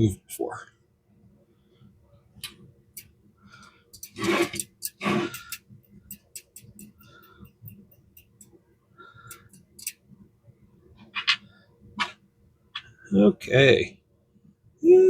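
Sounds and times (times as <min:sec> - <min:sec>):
small metal clicks: 0:03.9 - 0:07.0, 0:09.3 - 0:10.0
metal scraping: 0:04.0 - 0:05.6, 0:11.0 - 0:11.4.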